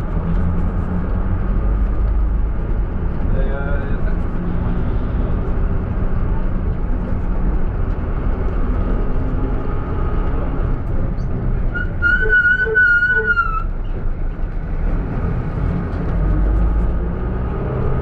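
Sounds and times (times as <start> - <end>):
low rumble of engine and traffic: 0.0 - 18.0
brake pads squealing: 11.2 - 14.0.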